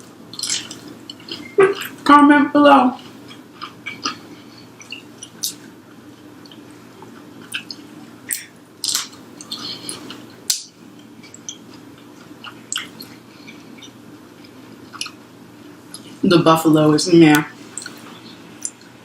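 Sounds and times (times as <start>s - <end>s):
chewing fried chicken: 0.1s - 2.1s, 3.0s - 16.2s
wet mouth sounds: 0.3s - 2.0s, 3.1s - 5.7s, 6.5s - 14.0s, 17.6s - 18.9s.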